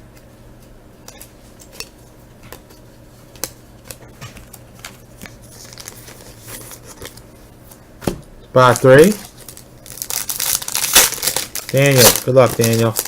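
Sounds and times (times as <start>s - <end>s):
wrapper rustling: 5.4s - 7.2s, 8.6s - 13.0s.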